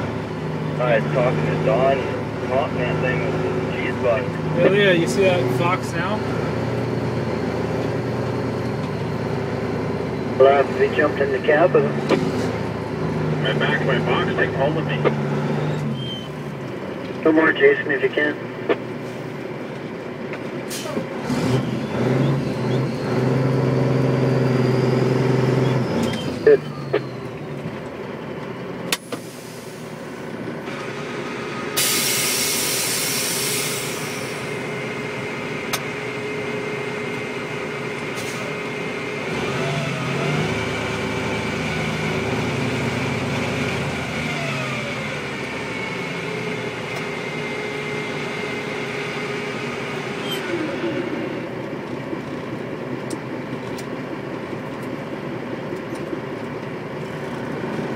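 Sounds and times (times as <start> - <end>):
diesel truck engine: 0.0 - 57.9
air brake hiss: 29.0 - 29.8, 31.8 - 34.4.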